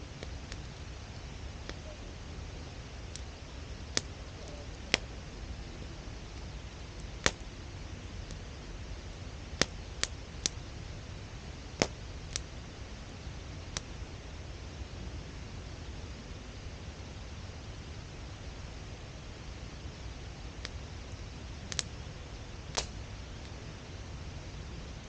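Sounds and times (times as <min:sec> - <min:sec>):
campfire crackling: 0:00.0 - 0:25.0
low steady rumble: 0:00.0 - 0:25.0
fire pops: 0:00.1 - 0:02.0, 0:03.0 - 0:10.7, 0:11.6 - 0:12.6, 0:13.6 - 0:14.0, 0:20.5 - 0:23.7.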